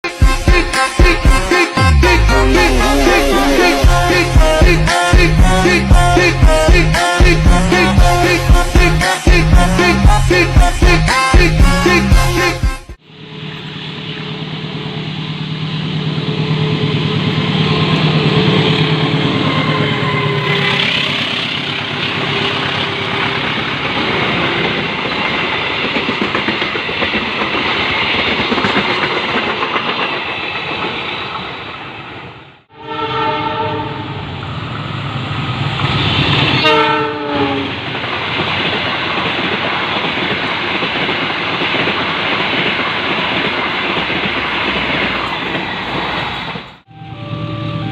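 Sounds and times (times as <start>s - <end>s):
train wheels clattering: 20.5s - 31.7s
locomotive horn blasts: 32.7s - 34.1s, 36.6s - 37.8s.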